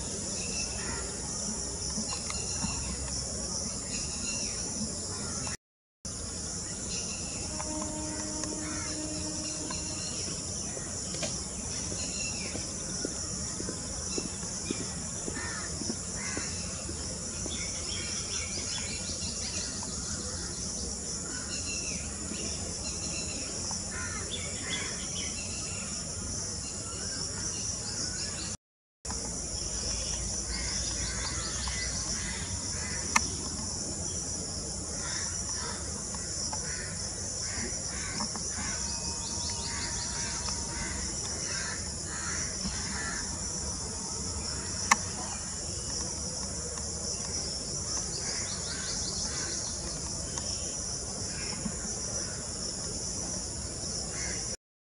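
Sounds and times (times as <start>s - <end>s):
high-pitched insect drone: 6.1s - 14.3s, 29.6s - 49.7s.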